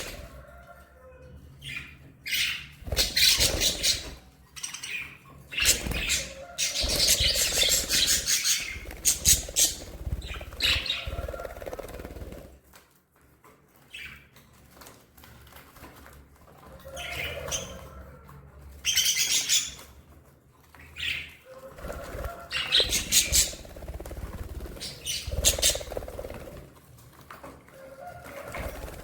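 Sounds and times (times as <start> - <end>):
budgerigars chirping and chattering: 1.6 - 11.6, 18.8 - 20.0, 20.9 - 26.2
bird wingbeats: 2.8 - 4.2, 5.6 - 12.6, 21.7 - 26.8, 28.2 - 29.0.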